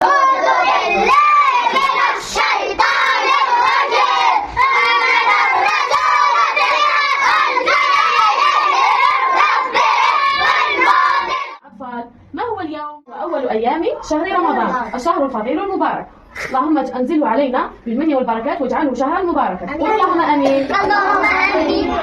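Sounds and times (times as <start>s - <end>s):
young children's voices: 0.0s - 11.6s, 13.2s - 15.3s, 19.6s - 22.0s.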